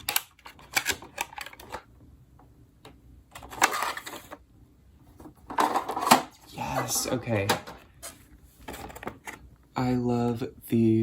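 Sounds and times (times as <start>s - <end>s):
plastic packaging clicking and crinkling: 0.0s - 1.9s.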